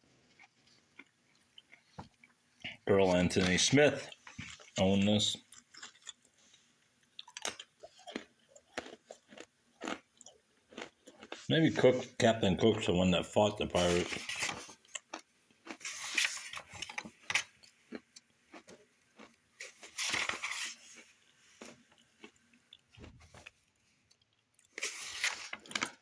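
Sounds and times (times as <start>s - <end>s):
crackers being crunched: 0.2s - 11.5s, 13.8s - 26.0s
book pages turning: 13.8s - 14.8s, 15.8s - 17.5s, 19.6s - 21.0s, 24.8s - 26.0s.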